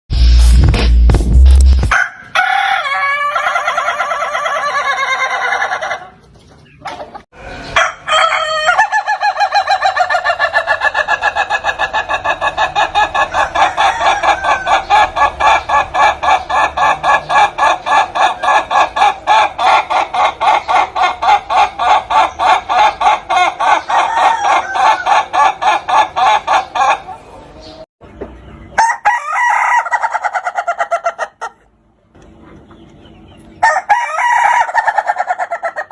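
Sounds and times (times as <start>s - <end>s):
rooster crowing like laughter: 1.9s - 6.1s, 7.6s - 19.7s, 23.6s - 27.0s, 28.8s - 31.4s, 33.6s - 35.9s.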